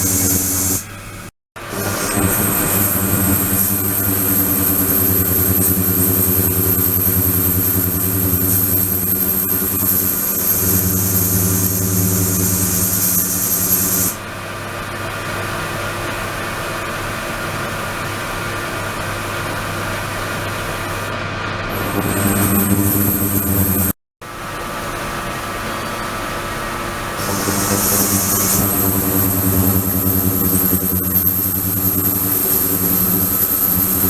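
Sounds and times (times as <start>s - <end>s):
high-pitched whine: 1.7s - 14.2s, 21.7s - 24.0s, 25.5s - 34.0s
equipment hum: 20.8s - 25.4s, 26.6s - 34.0s.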